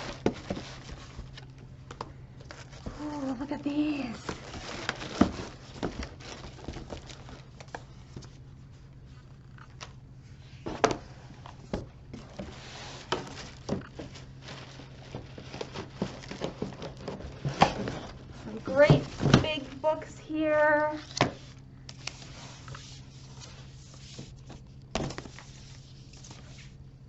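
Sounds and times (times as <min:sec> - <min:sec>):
books knocking and bumping: 0:00.0 - 0:03.1, 0:04.2 - 0:08.3, 0:10.6 - 0:19.8, 0:24.1 - 0:25.5
plastic packaging crinkling: 0:00.0 - 0:08.4, 0:12.2 - 0:20.0
faint low hum: 0:00.0 - 0:27.0.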